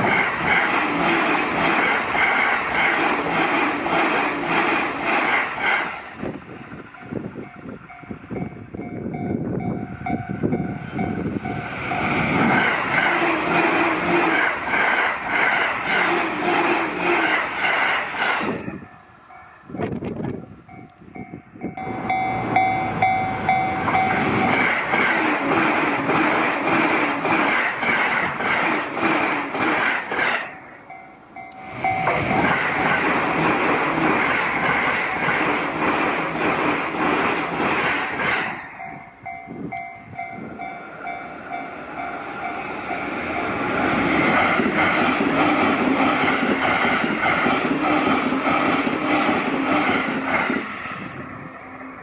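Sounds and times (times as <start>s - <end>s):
trains passing at high speed: 0.0s - 52.0s
level crossing warning bell: 6.5s - 12.3s, 18.6s - 24.7s, 30.5s - 33.0s, 38.6s - 43.8s.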